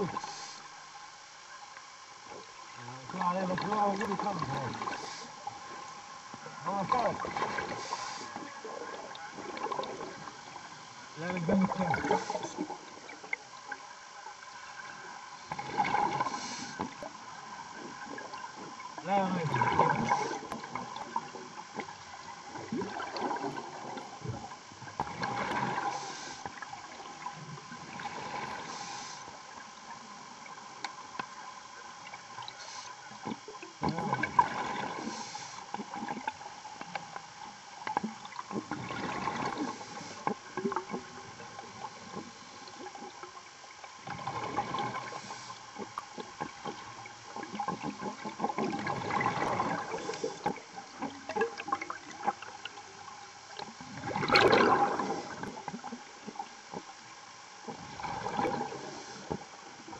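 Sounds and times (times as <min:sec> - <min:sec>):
diver breathing underwater: 0:00.0 - 0:00.7, 0:04.7 - 0:05.5, 0:07.4 - 0:08.5, 0:15.6 - 0:17.0, 0:19.7 - 0:20.6, 0:25.3 - 0:26.5, 0:28.2 - 0:29.4, 0:34.5 - 0:35.7, 0:39.0 - 0:40.3, 0:44.6 - 0:45.7, 0:49.3 - 0:50.7
faint steady hum: 0:00.0 - 0:59.9
exhaust bubbles gurgling: 0:02.6 - 0:13.8, 0:14.6 - 0:29.0, 0:33.2 - 0:37.0, 0:38.0 - 0:43.4, 0:44.0 - 0:56.5, 0:57.7 - 0:59.9.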